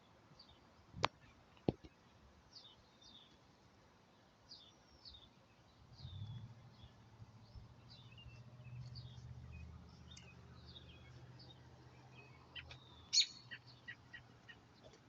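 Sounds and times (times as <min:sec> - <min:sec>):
faint low hum: 0:00.0 - 0:15.0
small birds chirping: 0:00.0 - 0:15.0.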